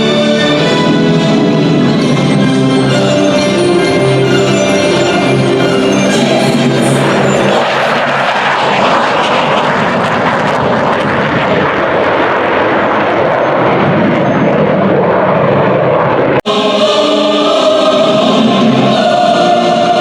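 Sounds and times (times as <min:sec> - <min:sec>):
background music: 0:00.0 - 0:07.6, 0:16.5 - 0:20.0
fighter jet flying past: 0:03.9 - 0:18.9.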